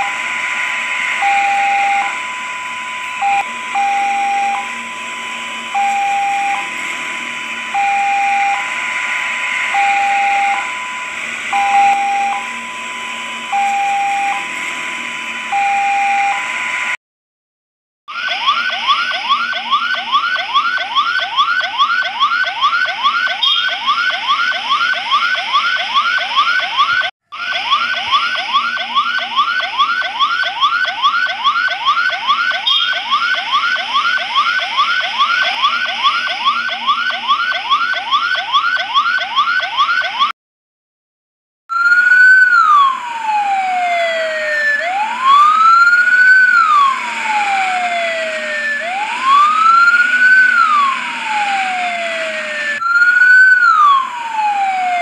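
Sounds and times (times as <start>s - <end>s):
siren wailing: 0.0s - 17.0s, 18.1s - 40.4s, 41.7s - 55.0s
siren yelping: 0.0s - 17.0s, 18.1s - 40.4s, 41.7s - 55.0s.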